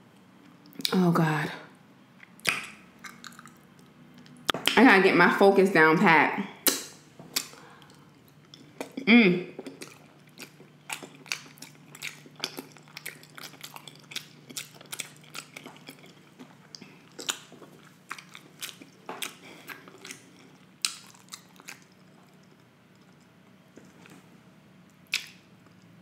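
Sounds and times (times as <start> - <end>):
wet chewing mouth clicks: 2.2 - 4.8, 6.6 - 9.0, 9.6 - 23.3, 25.1 - 25.9.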